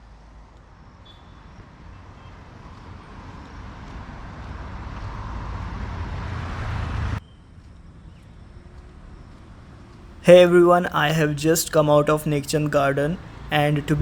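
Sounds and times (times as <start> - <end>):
vehicle approaching: 2.3 - 7.2, 7.8 - 14.0.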